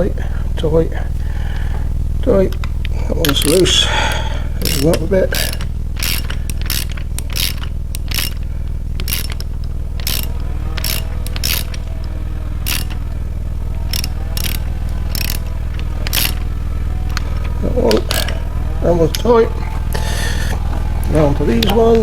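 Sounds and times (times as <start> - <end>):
low steady hum: 0.0 - 22.0
ratchet wrench clicking: 2.4 - 18.4.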